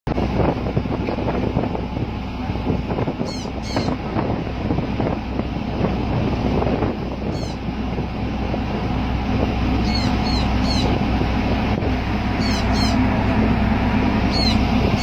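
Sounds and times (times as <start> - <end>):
steady low rumble: 0.1 - 15.0
bird chirping: 3.3 - 3.9, 7.3 - 7.6, 9.8 - 11.0, 12.4 - 13.0, 14.3 - 15.0.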